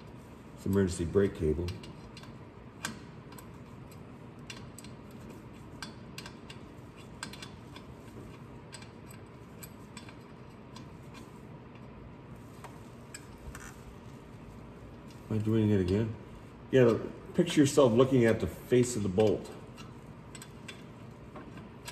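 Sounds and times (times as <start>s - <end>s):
wrench clicking on bolts: 1.5s - 11.9s, 19.0s - 21.9s.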